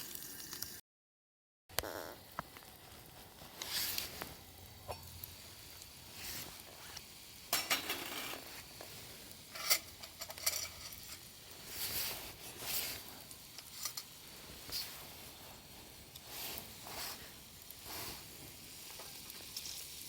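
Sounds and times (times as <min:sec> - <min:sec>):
cookware clinking and scraping: 0:07.5 - 0:08.6, 0:09.5 - 0:11.3.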